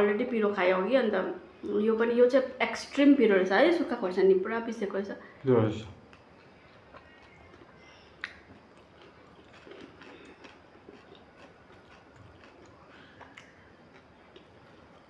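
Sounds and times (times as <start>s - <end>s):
people chewing: 5.4s - 15.0s.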